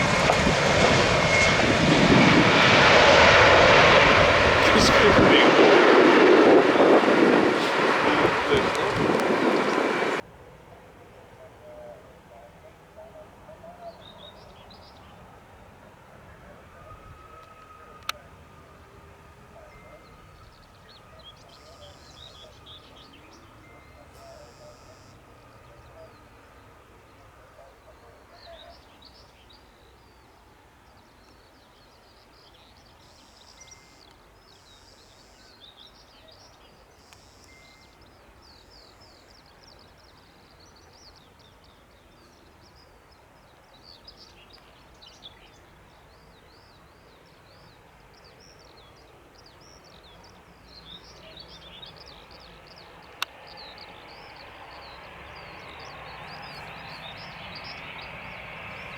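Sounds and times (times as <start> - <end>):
broad noise: 4.6 - 10.2
faint birdsong chirps and trills: 4.6 - 10.2, 11.0 - 58.9.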